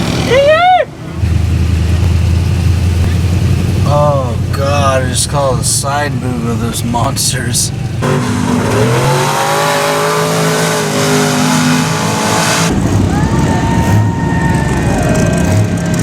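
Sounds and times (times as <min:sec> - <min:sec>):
truck engine revving: 0:00.0 - 0:16.0
wavering engine note: 0:07.8 - 0:16.0.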